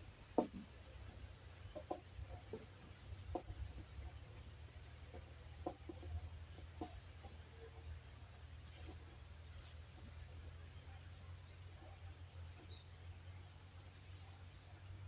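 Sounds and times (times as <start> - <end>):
bird clucking: 0.4 - 8.0.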